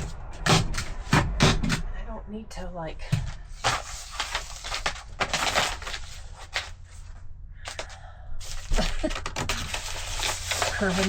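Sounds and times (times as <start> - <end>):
tar paper crinkling: 3.6 - 7.1, 7.7 - 11.0.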